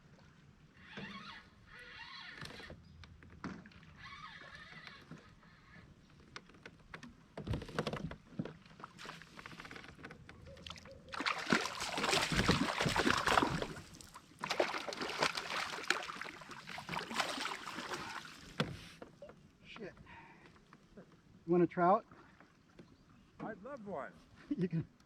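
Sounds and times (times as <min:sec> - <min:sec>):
knocks and clicks against kayak: 0:05.0 - 0:11.3, 0:18.4 - 0:21.3
paddle splashing through water: 0:08.5 - 0:19.0.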